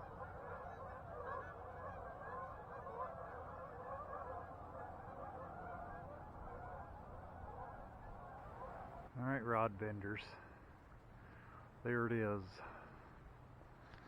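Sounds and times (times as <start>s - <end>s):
geese honking: 0.0s - 9.1s.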